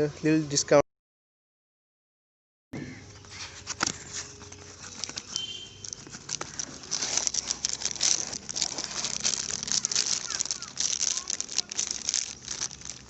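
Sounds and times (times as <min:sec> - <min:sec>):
packaging crinkling: 0:03.8 - 0:13.0.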